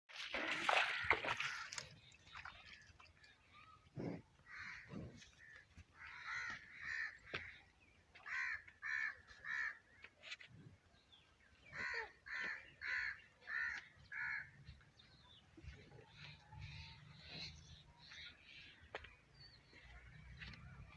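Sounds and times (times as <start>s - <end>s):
crows cawing: 4.5s - 7.6s, 8.2s - 10.0s, 11.7s - 14.6s.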